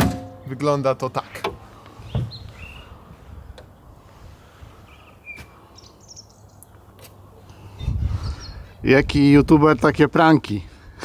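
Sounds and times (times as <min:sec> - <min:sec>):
car bonnet thump: 0:00.0 - 0:00.4, 0:02.1 - 0:02.4
birds chirping: 0:00.4 - 0:08.8.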